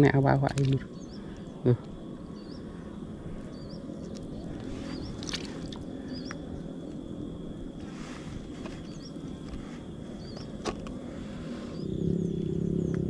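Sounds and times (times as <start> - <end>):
bird chirping: 0.0 - 6.6, 8.6 - 9.2, 10.1 - 10.6, 11.3 - 13.0.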